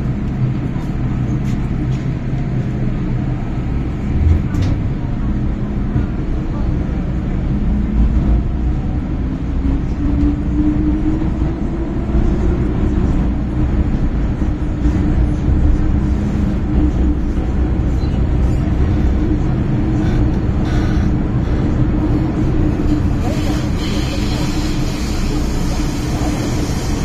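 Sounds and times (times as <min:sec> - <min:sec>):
train rumble with motor tone: 0:00.0 - 0:27.0.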